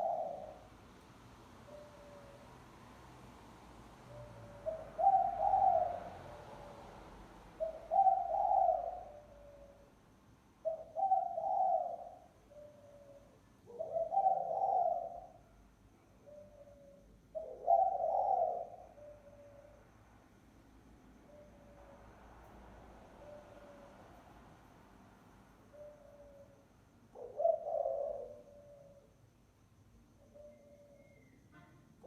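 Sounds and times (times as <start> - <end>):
dove cooing: 0.0 - 0.7, 1.6 - 2.4, 4.1 - 6.9, 7.6 - 9.8, 10.6 - 15.4, 16.2 - 19.8, 25.7 - 29.2.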